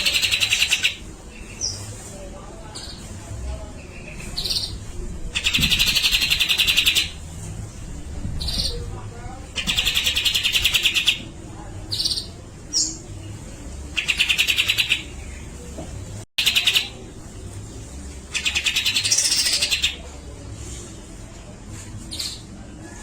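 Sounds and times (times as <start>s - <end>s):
bird rattling song: 0.0s - 1.0s, 4.4s - 7.2s, 9.6s - 11.2s, 14.0s - 15.1s, 18.3s - 20.0s.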